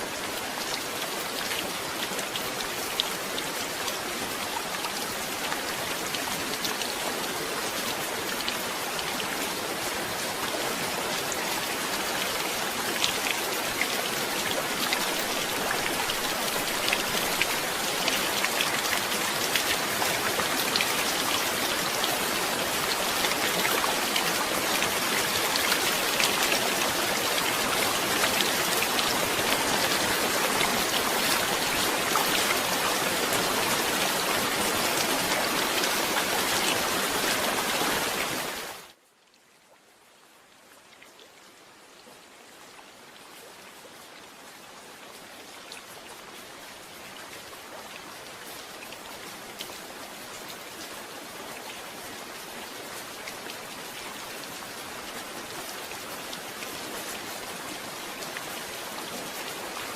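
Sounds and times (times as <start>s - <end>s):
heavy rain falling: 0.0s - 39.0s.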